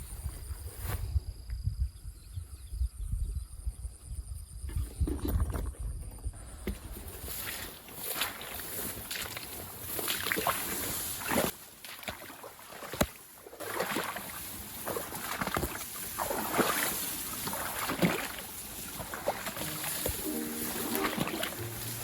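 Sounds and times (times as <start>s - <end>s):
water sloshing and splashing: 7.1s - 22.0s.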